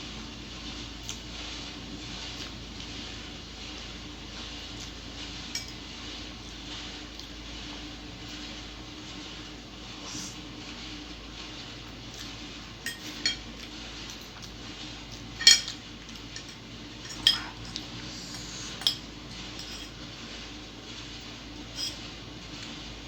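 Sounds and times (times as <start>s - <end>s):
cutlery clinking against dish: 5.5s - 5.8s, 12.8s - 14.3s, 15.4s - 17.8s, 18.8s - 20.0s, 21.7s - 22.0s.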